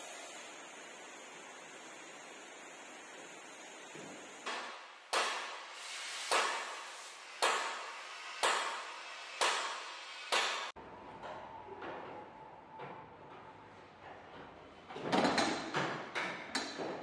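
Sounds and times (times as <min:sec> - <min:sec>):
hammer striking metal: 0:04.4 - 0:05.7, 0:07.4 - 0:10.8.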